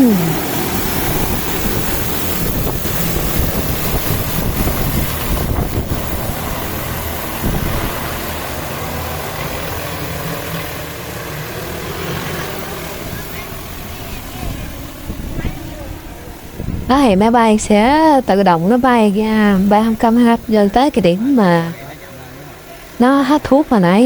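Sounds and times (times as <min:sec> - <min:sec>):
wind buffeting microphone: 0:00.0 - 0:10.0, 0:12.5 - 0:21.3
drone rotors running: 0:00.0 - 0:24.0.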